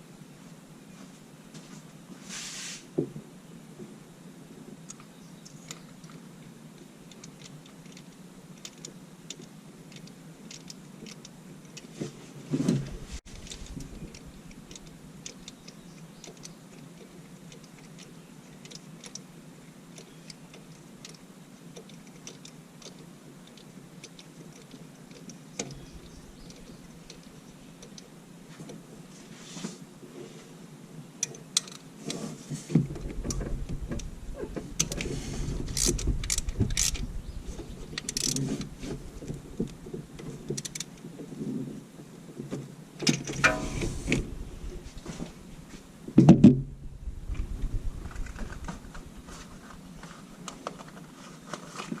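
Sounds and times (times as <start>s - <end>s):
light clicks and ticks: 6.8s - 11.9s, 13.4s - 19.3s, 19.9s - 28.8s, 35.8s - 41.1s
low hum: 43.3s - 50.1s.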